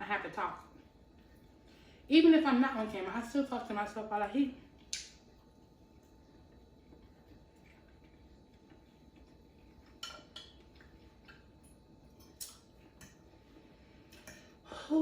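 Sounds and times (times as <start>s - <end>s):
faint eating clicks and clinks: 6.9s - 14.6s.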